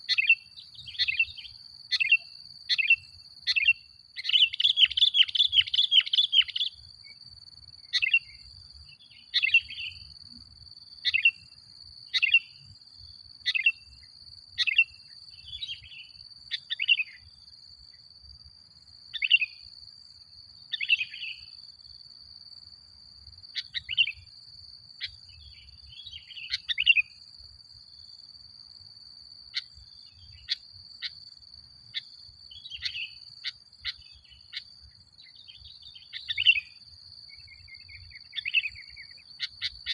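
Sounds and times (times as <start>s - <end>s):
bulbul chirping calls: 0.1s - 6.8s, 36.0s - 36.8s.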